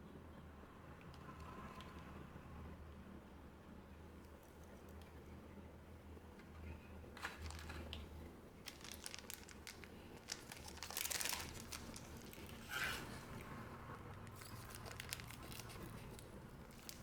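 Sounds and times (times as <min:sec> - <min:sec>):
wrappers crinkling: 0:07.2 - 0:17.0.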